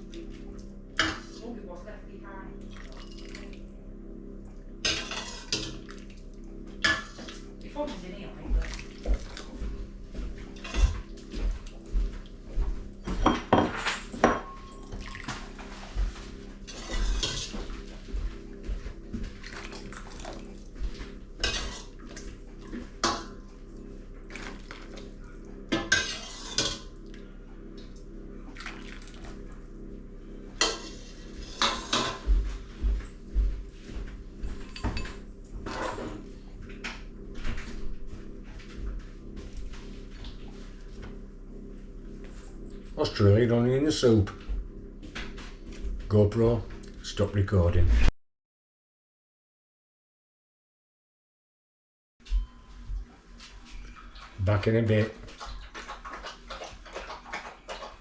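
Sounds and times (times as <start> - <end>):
steady low hum: 0.0 - 48.1
crockery and cutlery clinking: 13.1 - 15.1, 34.5 - 36.3.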